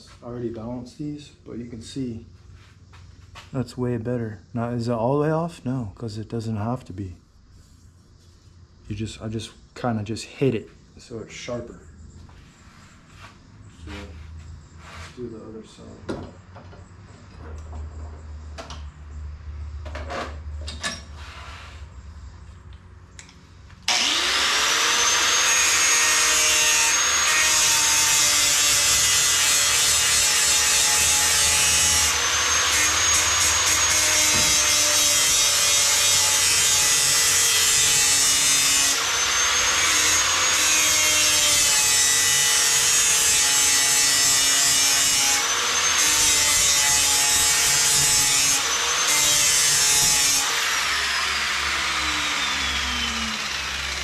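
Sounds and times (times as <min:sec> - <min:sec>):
angle grinder grinding steel: 0:23.9 - 0:54.0.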